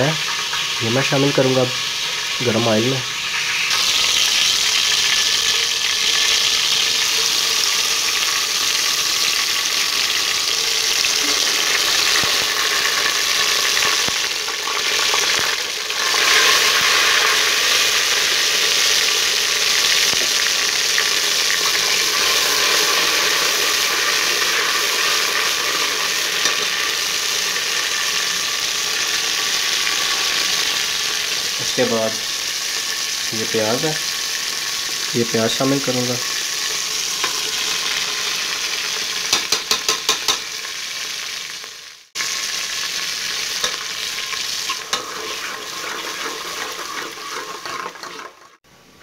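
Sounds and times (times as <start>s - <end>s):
paste sizzling in hot oil: 0.0s - 48.6s
steel ladle stirring: 44.7s - 48.5s.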